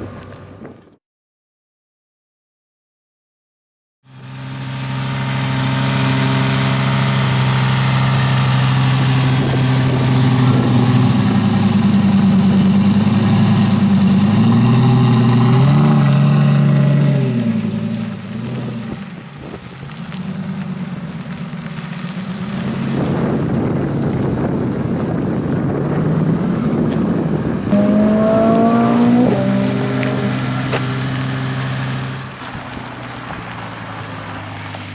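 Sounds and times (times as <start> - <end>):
loud engine drone: 4.1 - 19.0, 25.2 - 32.4
sports car engine revving: 4.2 - 34.8.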